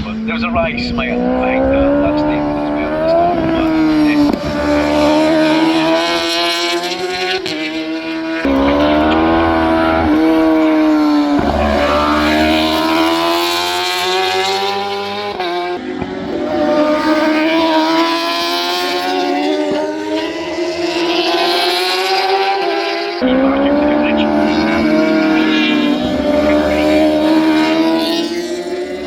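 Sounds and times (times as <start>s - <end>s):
superbike engines screaming: 8.4s - 15.1s.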